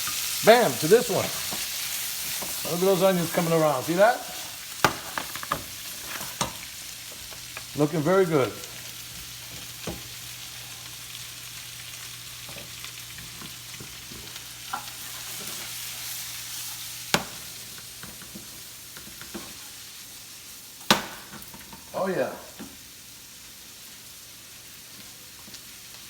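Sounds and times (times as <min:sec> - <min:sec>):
onions sizzling in a pan: 0:00.0 - 0:26.0.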